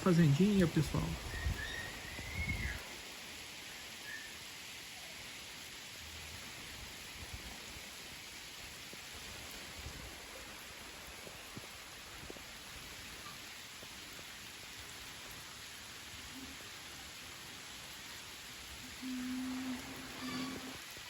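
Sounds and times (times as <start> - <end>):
steady rain hiss: 0.0 - 21.0
faint drips and ticks: 5.0 - 21.0.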